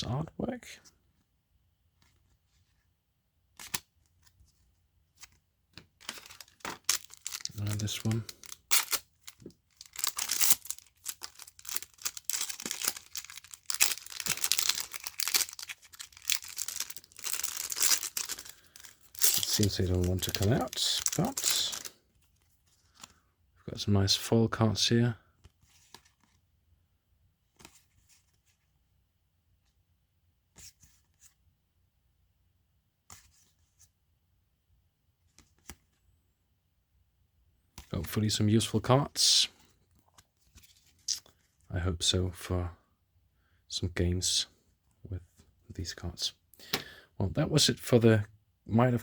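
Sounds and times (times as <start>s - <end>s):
trading cards rustling and tapping: 5.2s - 21.9s
plastic wrapper crinkling: 6.0s - 22.0s.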